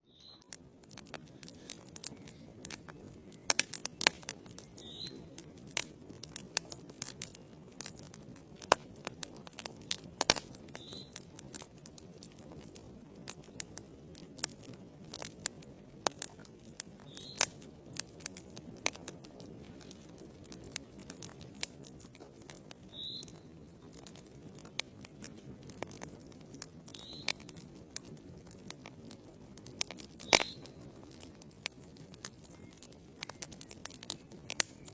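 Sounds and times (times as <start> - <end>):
logs crackling and popping: 0.0 - 34.9
low rush of flame: 0.5 - 34.9.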